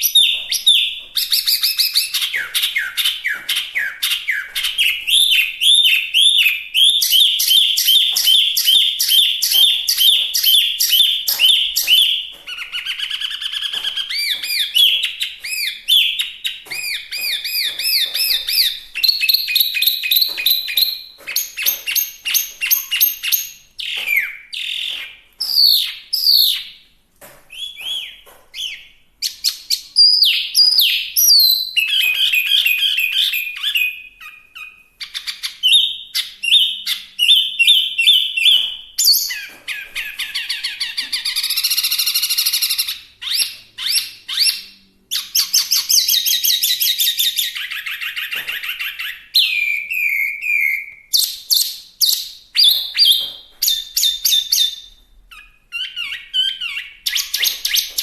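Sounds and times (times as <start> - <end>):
bird singing varied whistles: 27.6 - 39.5, 40.2 - 58.0.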